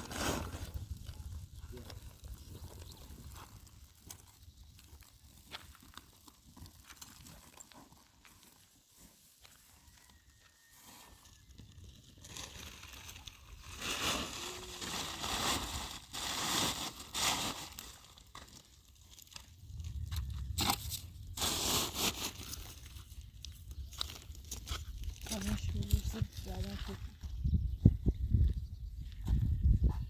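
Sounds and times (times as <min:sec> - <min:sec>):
crunching and rustling: 0:00.0 - 0:27.3
low rumble: 0:19.4 - 0:21.7.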